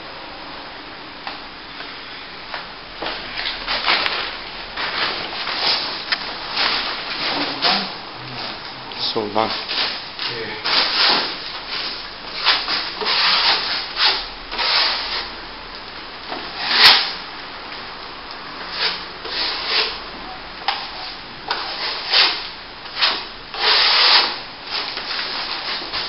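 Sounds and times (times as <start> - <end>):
trowel scraping wet plaster: 13.0 - 15.3, 23.0 - 24.4.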